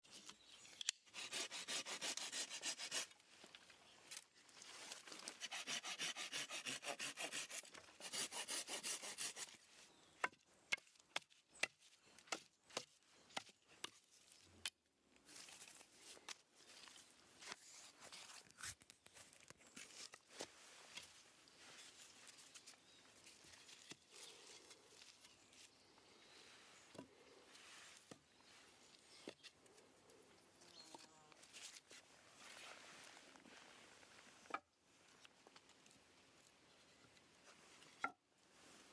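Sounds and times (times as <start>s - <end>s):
hand sawing wood: 1.0s - 3.2s, 5.1s - 9.6s.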